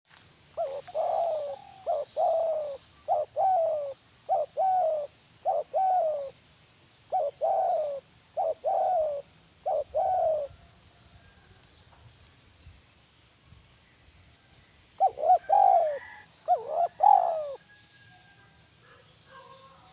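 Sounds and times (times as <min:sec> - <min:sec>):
dove cooing: 0:00.6 - 0:06.4, 0:07.1 - 0:10.7, 0:15.0 - 0:17.8.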